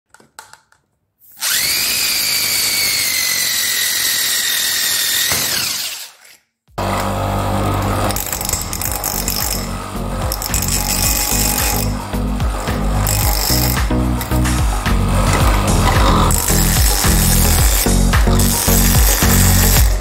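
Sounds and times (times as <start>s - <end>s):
power tool motor whining: 1.3s - 20.0s
music: 7.5s - 20.0s.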